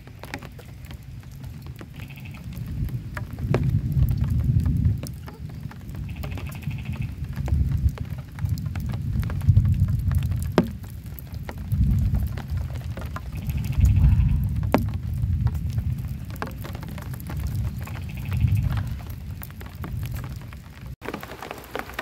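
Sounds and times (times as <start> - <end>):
rain pattering on shelter: 0.0 - 22.0
low rumble: 11.2 - 21.0.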